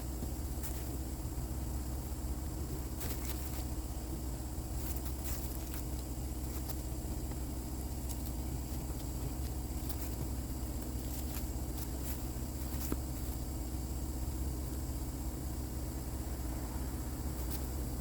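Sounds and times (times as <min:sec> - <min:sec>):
low machine hum with whine: 0:00.0 - 0:18.0
light clicks and scrapes: 0:04.8 - 0:13.4.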